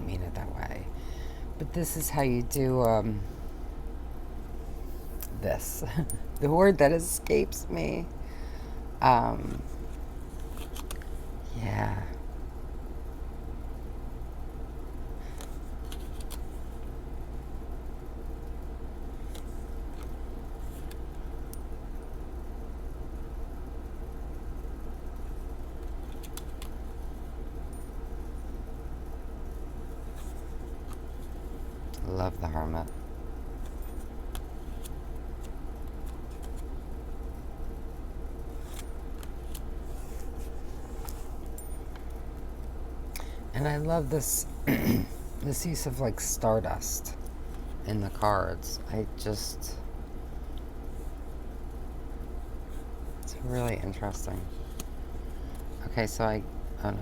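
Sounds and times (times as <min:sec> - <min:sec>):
steady low hum: 0:00.0 - 0:57.0
cards being flipped: 0:09.4 - 0:11.1, 0:15.3 - 0:16.6, 0:19.2 - 0:21.0, 0:33.6 - 0:36.7, 0:38.6 - 0:41.6, 0:53.6 - 0:55.8
cards clicking: 0:10.4 - 0:11.1, 0:15.3 - 0:16.5, 0:54.6 - 0:55.7.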